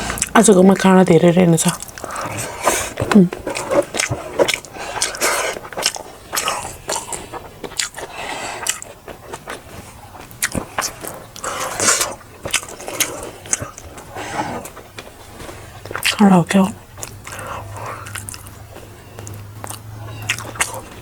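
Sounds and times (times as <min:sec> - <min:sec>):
person chewing food: 0:00.0 - 0:21.0
wet mouth clicks and smacks: 0:17.0 - 0:18.6, 0:19.2 - 0:21.0.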